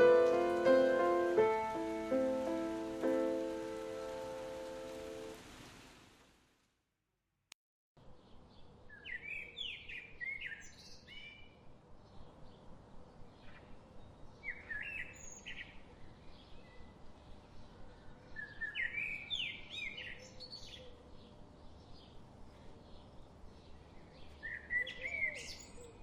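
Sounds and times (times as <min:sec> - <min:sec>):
songbird singing whistled notes: 0:08.9 - 0:11.6, 0:13.4 - 0:17.0, 0:18.2 - 0:21.0, 0:23.0 - 0:26.0.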